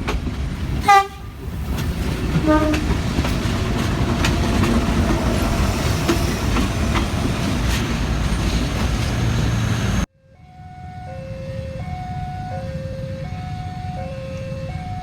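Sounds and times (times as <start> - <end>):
wheels clicking over rail joints: 0.0 - 10.0
train rumbling past: 0.0 - 10.1
train horn blast: 0.8 - 1.4, 2.3 - 5.4.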